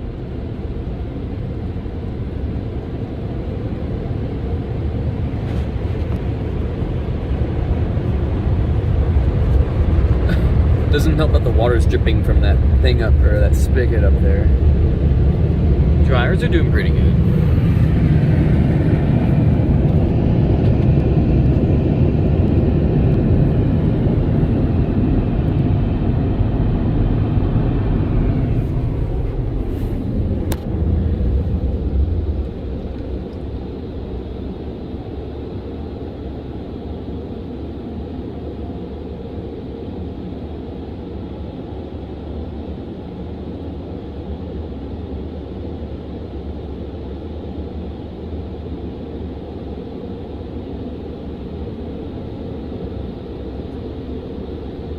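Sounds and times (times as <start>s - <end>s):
low steady rumble: 0.0s - 54.9s
car wash dryers blowing: 4.8s - 35.9s.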